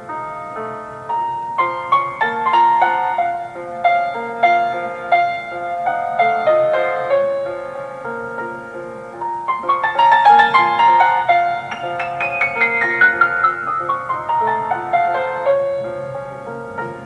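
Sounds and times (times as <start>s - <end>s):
classical piano piece: 0.0s - 17.0s.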